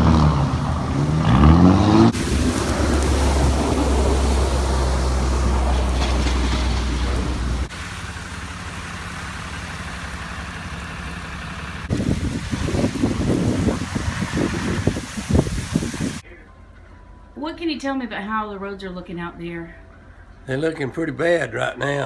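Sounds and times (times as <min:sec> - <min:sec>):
rough uneven engine noise: 0:00.0 - 0:16.2
engine humming: 0:00.0 - 0:16.9.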